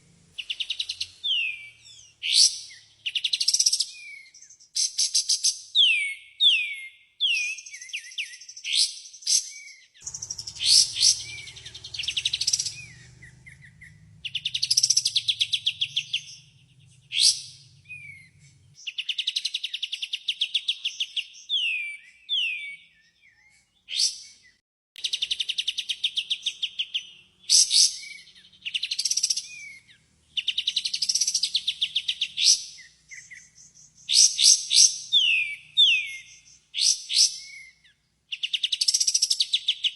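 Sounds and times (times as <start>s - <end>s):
bird singing trills and whistles: 0.4s - 39.9s
faint low hum: 10.0s - 18.8s.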